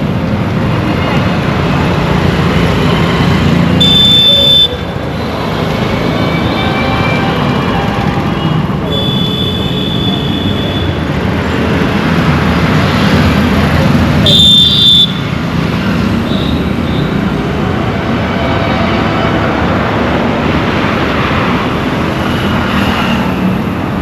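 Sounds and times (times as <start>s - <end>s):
road traffic rumble: 0.0s - 24.0s
high horn toot: 3.8s - 4.8s, 8.8s - 11.0s, 14.2s - 15.3s.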